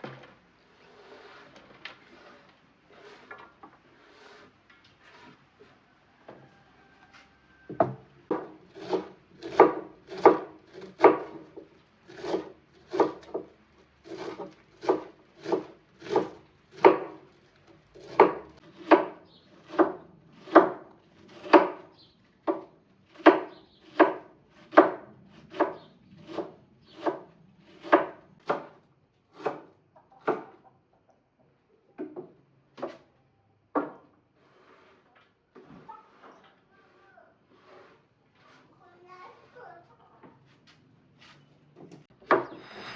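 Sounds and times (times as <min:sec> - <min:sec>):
rasping strokes on rough surface: 0:00.7 - 0:05.8, 0:08.6 - 0:11.1, 0:12.1 - 0:13.4, 0:14.0 - 0:17.3, 0:34.4 - 0:35.1, 0:35.9 - 0:39.6, 0:42.3 - 0:42.9.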